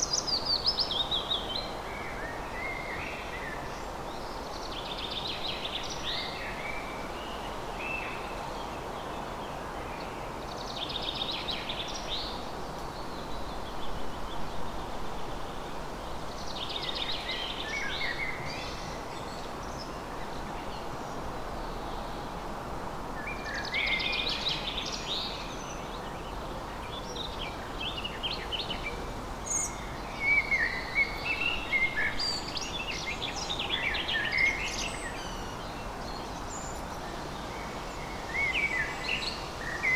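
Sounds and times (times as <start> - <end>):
steady background hiss: 0.0 - 39.9
songbirds singing: 23.2 - 39.9.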